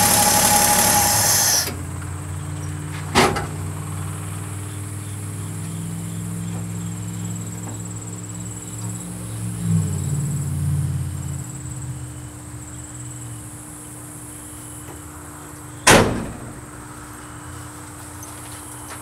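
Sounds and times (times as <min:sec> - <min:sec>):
crickets chirping: 0:05.0 - 0:15.8.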